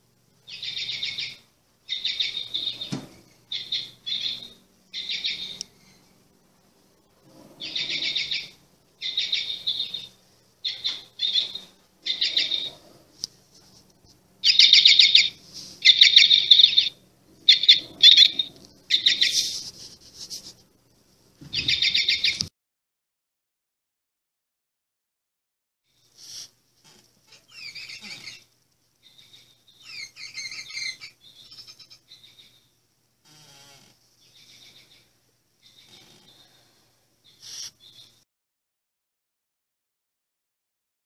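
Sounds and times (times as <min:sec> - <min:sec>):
bird chirping trills: 0:00.4 - 0:06.2, 0:07.6 - 0:12.9, 0:14.4 - 0:19.8, 0:21.5 - 0:22.4, 0:27.3 - 0:32.8, 0:34.2 - 0:36.6.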